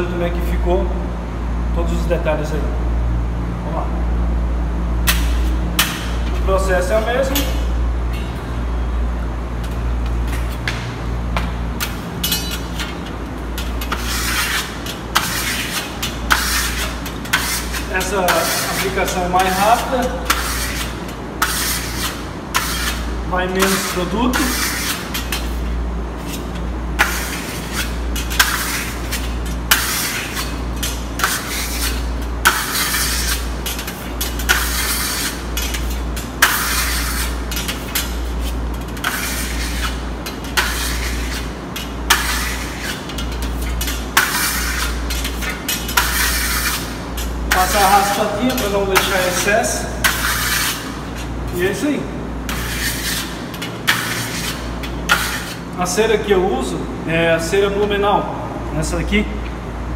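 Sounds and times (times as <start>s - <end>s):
steady low hum: 0.0s - 59.9s
trowel scraping and clicking: 11.8s - 51.6s, 52.5s - 55.6s.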